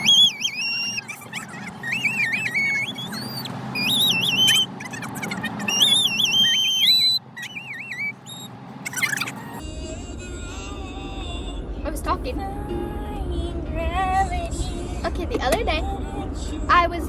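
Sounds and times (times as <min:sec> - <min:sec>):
high-pitched squeaky warbling: 0:00.0 - 0:09.6
car cabin road rumble: 0:00.0 - 0:17.0.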